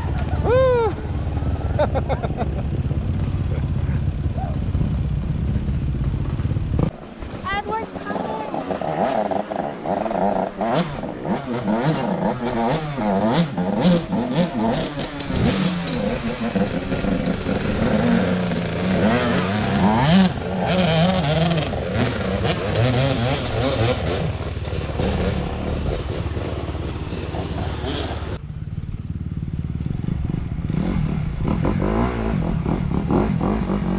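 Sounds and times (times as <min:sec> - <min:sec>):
dirt bike engines revving: 0:00.0 - 0:33.9.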